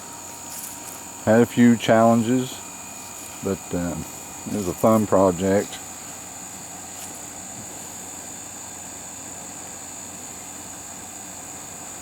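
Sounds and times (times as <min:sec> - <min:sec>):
high-pitched whine: 0:00.0 - 0:07.9.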